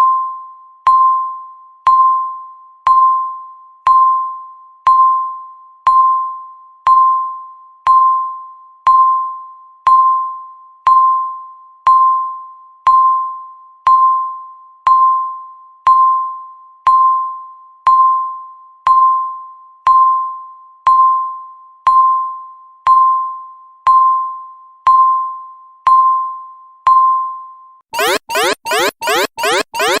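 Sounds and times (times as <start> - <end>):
alarm with rising sweeps: 28.0 - 30.0
countdown timer beeps: 28.0 - 30.0.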